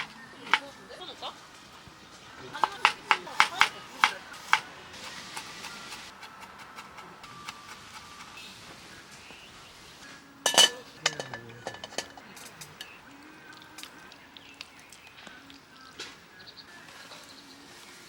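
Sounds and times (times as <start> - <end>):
dishes clinking: 0.0 - 0.9, 2.6 - 8.2, 10.4 - 13.0.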